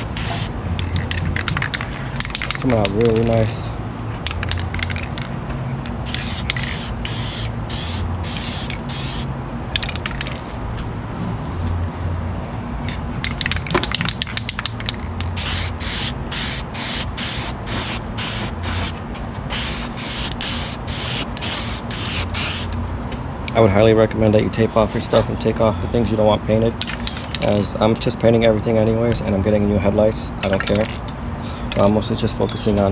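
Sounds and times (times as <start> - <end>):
spray paint can hissing: 0.0 - 0.5, 6.0 - 9.3, 15.3 - 22.8.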